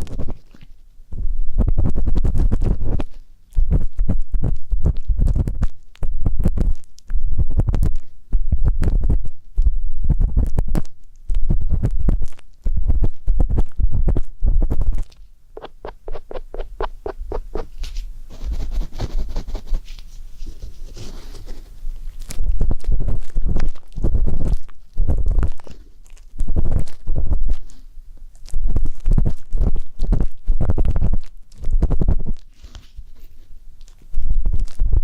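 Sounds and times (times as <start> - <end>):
soft rustling: 0.0 - 35.0
ear pick scraping and rubbing: 14.6 - 27.8.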